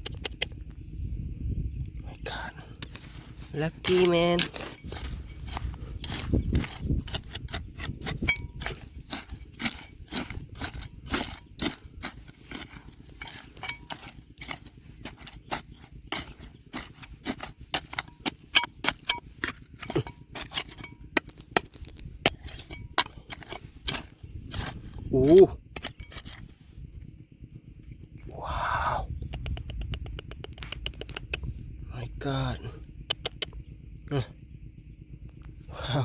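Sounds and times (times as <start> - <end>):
tools knocking on rock and gravel: 3.5 - 26.5.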